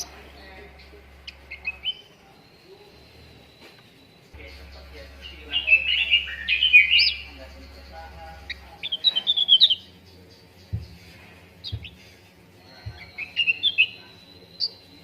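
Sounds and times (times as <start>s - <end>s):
bird chirping: 0.0s - 15.0s
soft low thumps: 9.9s - 13.4s.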